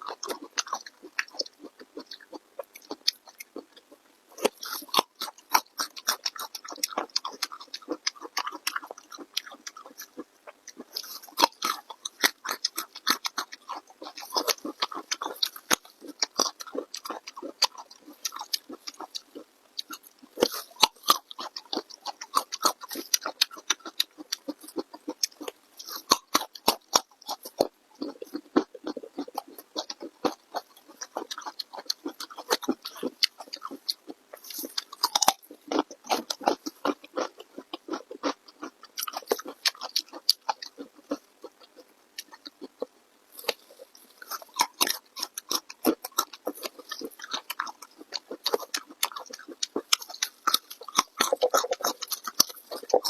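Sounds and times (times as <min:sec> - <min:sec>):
mouth clicks: 0:00.0 - 0:53.0
person chewing and crunching: 0:00.0 - 0:53.0.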